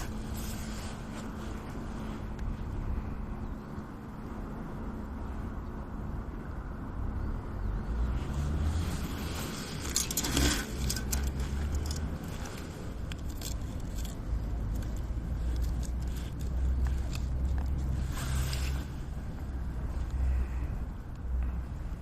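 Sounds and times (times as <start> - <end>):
sharp clicks and scrapes: 8.7 - 19.2.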